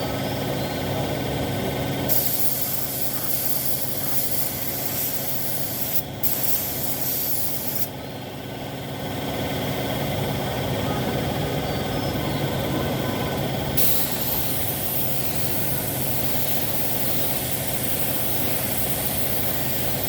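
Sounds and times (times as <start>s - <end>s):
steady machine hum: 0.0s - 20.0s
paint spray gun hissing: 2.1s - 7.9s, 13.8s - 20.0s.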